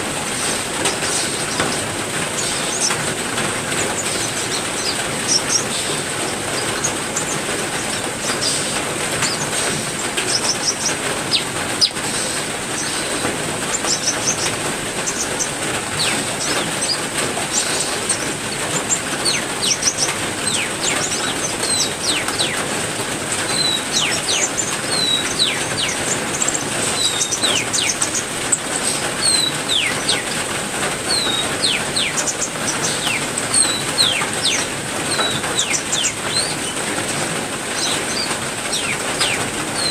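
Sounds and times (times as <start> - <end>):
heavy rain: 0.0 - 39.9
small birds chirping: 0.3 - 39.9.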